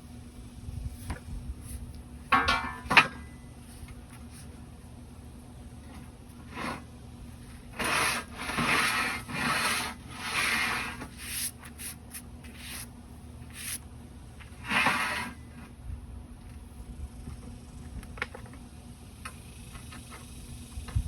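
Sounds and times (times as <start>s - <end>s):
rubbing strokes over a surface: 7.8s - 12.9s, 13.5s - 13.8s.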